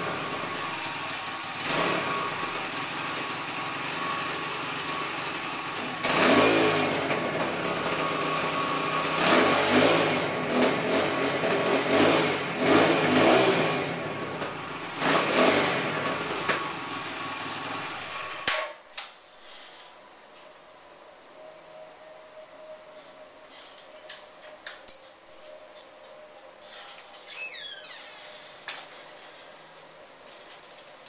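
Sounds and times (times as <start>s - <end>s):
dirt bike engine revving: 0.0s - 4.6s, 5.2s - 16.4s.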